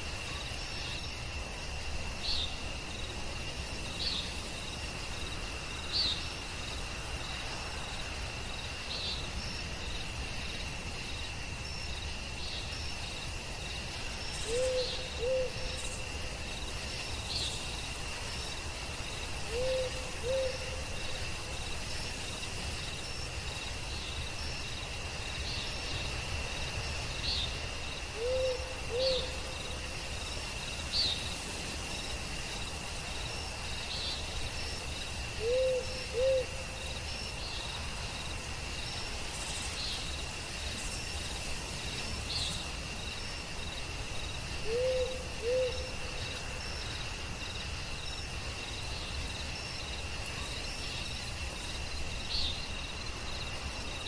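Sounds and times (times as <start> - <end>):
insect trill: 0.0 - 54.0
owl hooting: 14.4 - 15.6, 19.5 - 20.8, 28.2 - 29.4, 35.4 - 36.6, 44.6 - 45.8.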